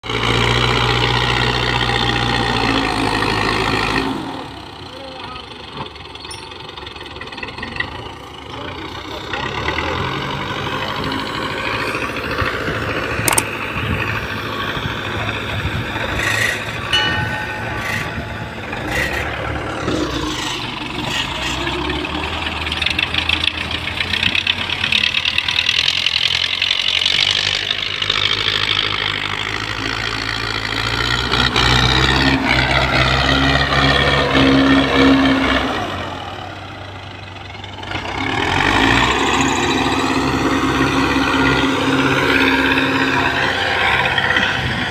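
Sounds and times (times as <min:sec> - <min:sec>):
tractor diesel engine under load: 0:00.0 - 0:44.9.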